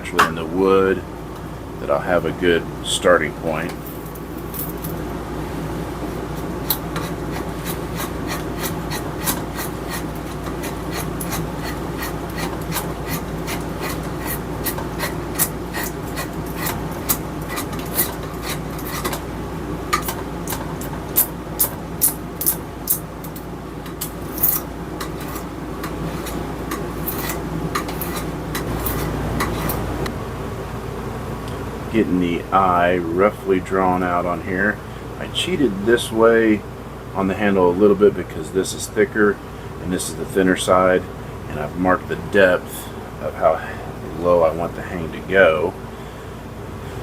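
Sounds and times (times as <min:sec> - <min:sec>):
hand tool scraping wood: 0:06.4 - 0:19.2, 0:20.0 - 0:29.9
sharp irregular ticks: 0:06.7 - 0:19.2.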